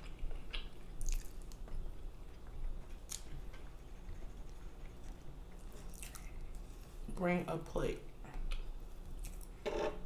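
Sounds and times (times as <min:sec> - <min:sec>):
person chewing and smacking: 0:00.0 - 0:06.7, 0:08.4 - 0:09.6.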